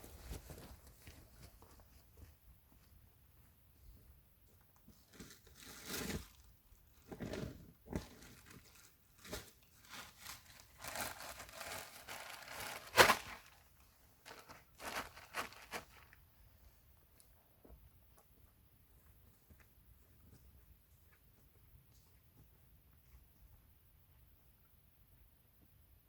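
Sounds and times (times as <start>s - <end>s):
gear rustling and crinkling: 4.9s - 16.2s.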